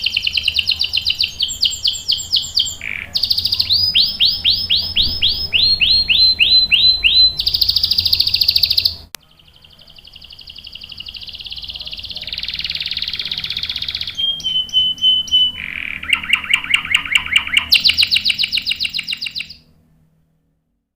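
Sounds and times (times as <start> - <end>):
canary singing trills: 0.0 - 19.7.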